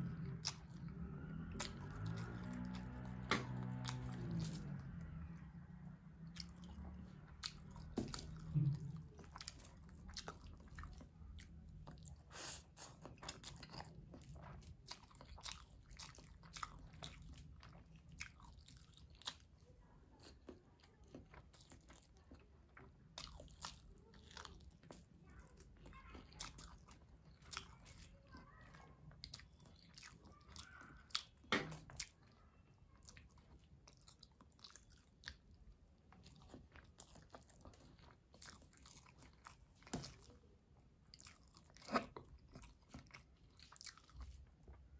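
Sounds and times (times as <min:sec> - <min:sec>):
wet chewing with mouth smacks: 0:00.0 - 0:05.4, 0:06.2 - 0:44.9.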